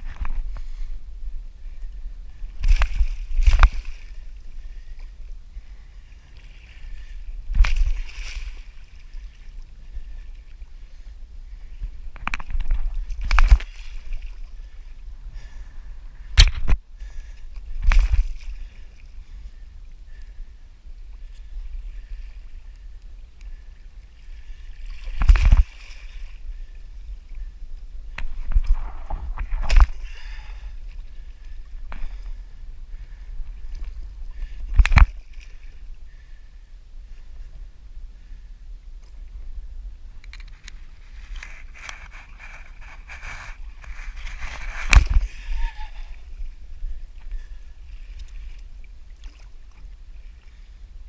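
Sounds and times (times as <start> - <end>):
water splashing around kayak: 0.0 - 51.0
low rumble: 26.6 - 41.3.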